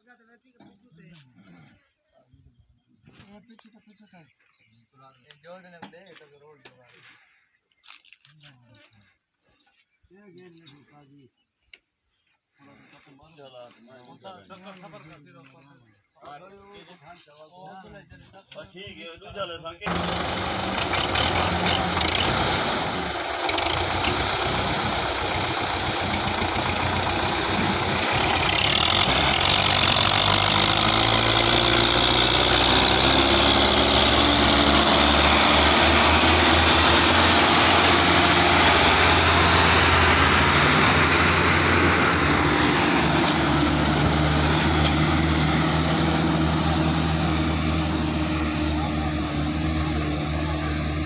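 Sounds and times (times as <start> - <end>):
tractor engine running: 19.9 - 51.0.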